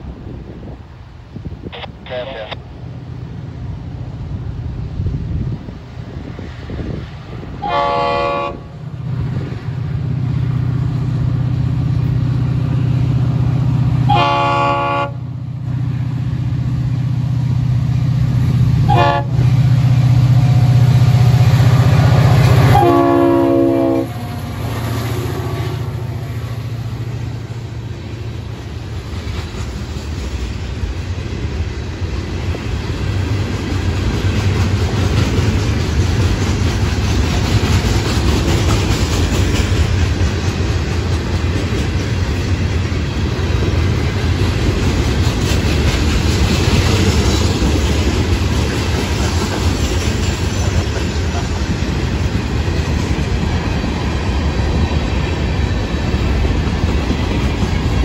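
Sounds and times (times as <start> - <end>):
locomotive horn: 7.6 - 8.7, 14.1 - 15.3, 18.8 - 19.6, 21.6 - 24.7
train wheels clacking on rails: 26.3 - 58.0.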